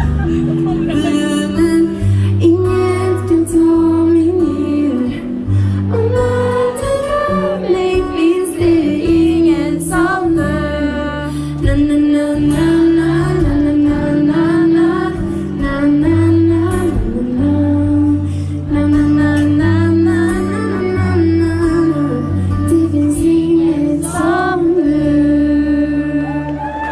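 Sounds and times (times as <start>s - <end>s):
bass notes: 0.0s - 26.9s
lead vocal: 0.0s - 26.9s
pop band playing live: 0.0s - 26.9s.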